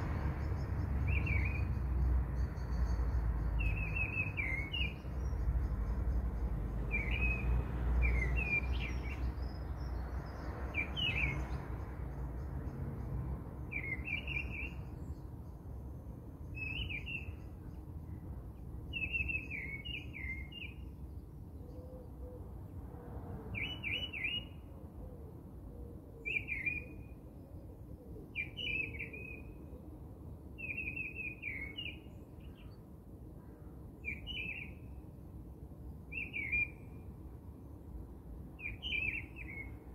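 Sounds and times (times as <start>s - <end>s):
small bird chirping: 2.4s - 11.6s.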